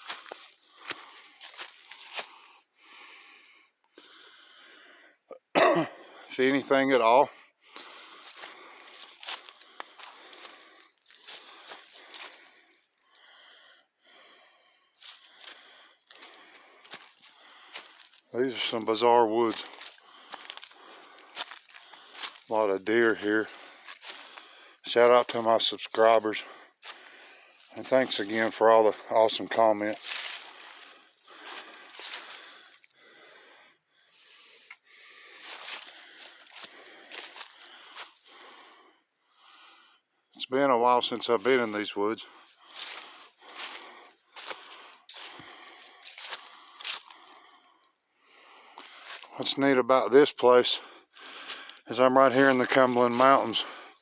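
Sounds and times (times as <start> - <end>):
footsteps crunching dry leaves: 0.0 - 2.5, 8.1 - 12.5, 15.0 - 32.9, 35.1 - 38.7, 41.2 - 47.6, 48.4 - 49.4, 51.1 - 54.0
person breathing out and in: 2.2 - 5.3, 7.4 - 18.2, 26.4 - 27.7, 30.4 - 40.1, 42.2 - 49.3, 50.8 - 51.9.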